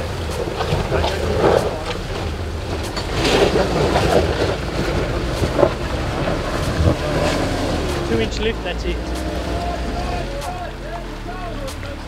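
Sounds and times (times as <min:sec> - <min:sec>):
car engine working hard: 0:00.0 - 0:12.0
creek water flowing: 0:00.0 - 0:12.0.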